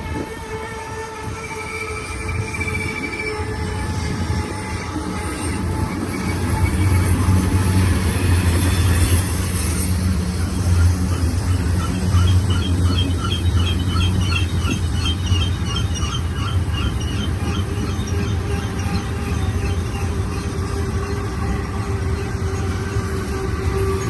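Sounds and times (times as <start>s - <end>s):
freight train wheels rumbling: 0.0s - 24.0s
high repeating squeak: 11.1s - 21.2s.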